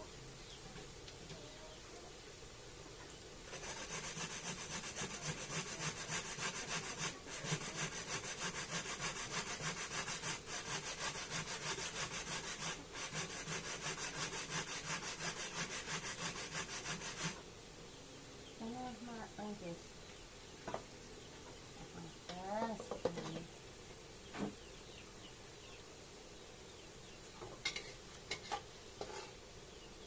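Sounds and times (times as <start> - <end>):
rhythmic hand scraping food: 3.4 - 17.5, 27.6 - 29.6.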